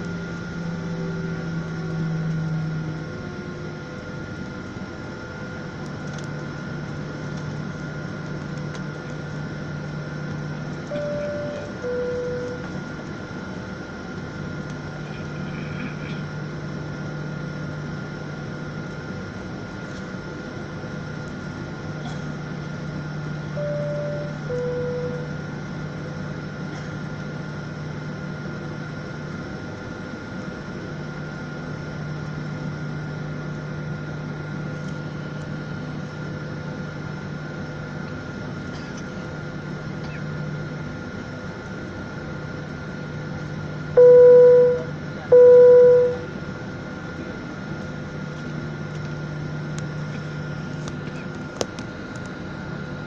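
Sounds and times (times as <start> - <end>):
airliner cabin drone: 0.0 - 53.0
loud single beeps: 23.6 - 25.3, 44.0 - 46.3
two-note high-low chime: 44.0 - 46.3.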